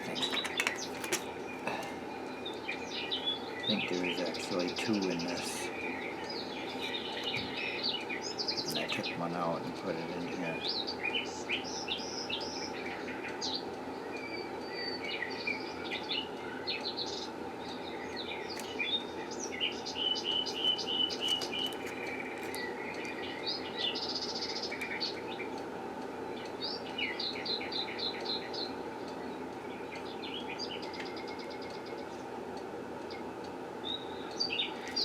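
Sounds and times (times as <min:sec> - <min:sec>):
low background hum: 0:00.0 - 0:35.0
small birds chirping: 0:00.0 - 0:35.0.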